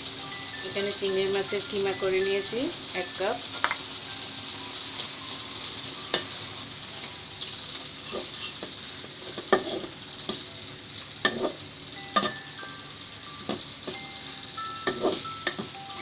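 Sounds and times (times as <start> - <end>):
food sizzling in oil: 0.0 - 16.0
wooden spoon scraping metal pan: 9.3 - 9.9, 14.9 - 15.2.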